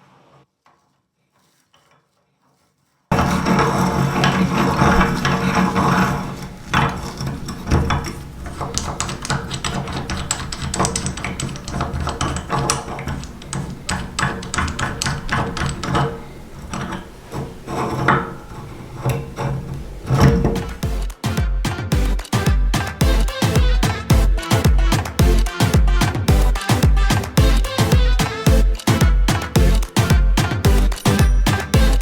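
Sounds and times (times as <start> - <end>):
machine humming: 20.1 - 32.0
meat grinder crushing crunchy food: 20.8 - 32.0.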